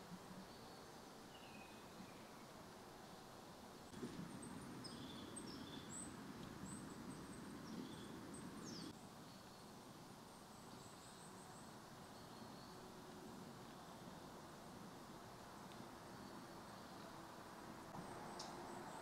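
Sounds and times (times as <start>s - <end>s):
soft low rustle: 3.9s - 8.9s
small birds chirping: 4.2s - 9.9s.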